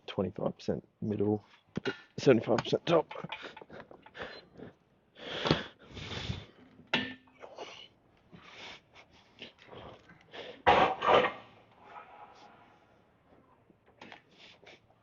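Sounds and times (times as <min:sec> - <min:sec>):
person breathing heavily: 0:03.3 - 0:06.6.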